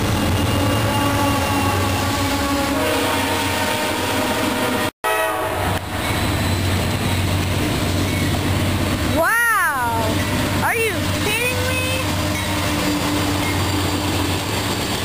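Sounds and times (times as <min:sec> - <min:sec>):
wheels rumbling on rails: 0:00.0 - 0:03.6, 0:05.5 - 0:15.0
train horn: 0:00.0 - 0:05.9, 0:10.2 - 0:14.0
diesel locomotive engines running: 0:00.0 - 0:15.0.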